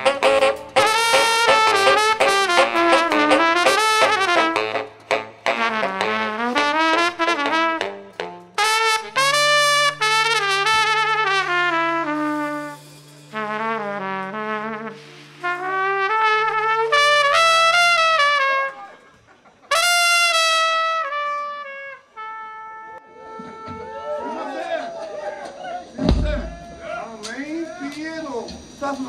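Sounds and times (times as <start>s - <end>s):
trumpet playing: 0.0s - 24.7s.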